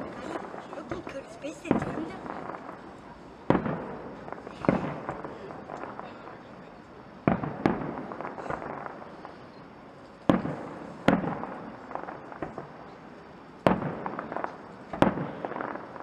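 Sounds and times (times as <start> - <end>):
firework shells bursting: 0.0 - 6.4
firework crackles: 0.0 - 16.0.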